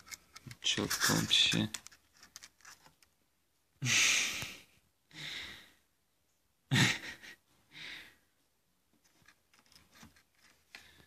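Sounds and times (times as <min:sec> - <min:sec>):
soft breath: 0:03.8 - 0:05.9, 0:07.6 - 0:08.4.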